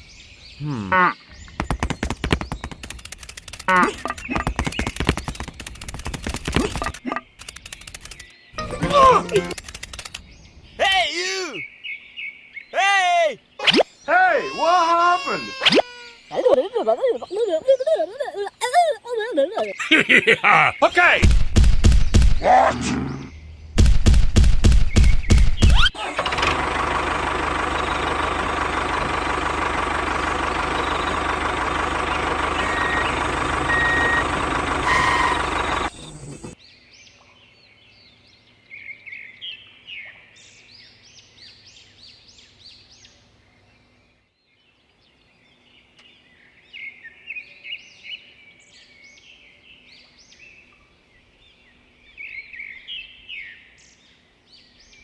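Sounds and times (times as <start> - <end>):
birds chirping: 0.0 - 21.3, 21.9 - 23.8, 24.7 - 55.0
loud mechanical noise: 26.0 - 36.6.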